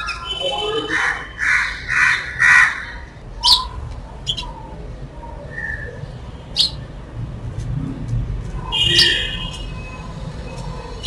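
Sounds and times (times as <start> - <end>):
loud bird calls: 0.0 - 4.7, 8.7 - 9.4
sparrows chirping: 0.0 - 7.0, 8.7 - 11.0.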